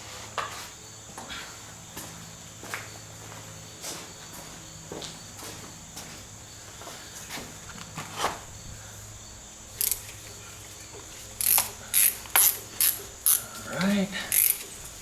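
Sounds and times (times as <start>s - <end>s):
ratchet wrench clicking: 9.8s - 10.3s, 11.4s - 15.0s
tool-handling clicks: 9.8s - 10.4s, 11.4s - 14.8s.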